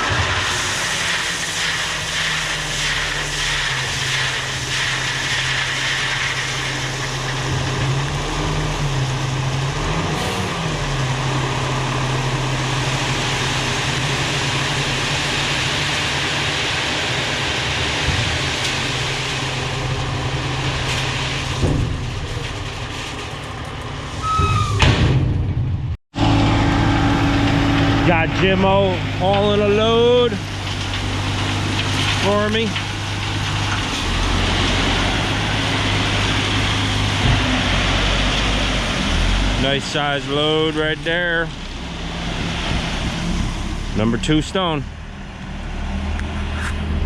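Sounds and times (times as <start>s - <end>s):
heavy diesel engine running under load: 0.0s - 24.9s, 25.7s - 47.0s.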